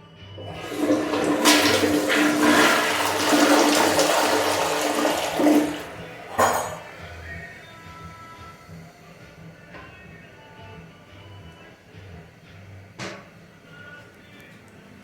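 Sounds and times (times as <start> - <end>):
toilet flushing: 0.4 - 7.6.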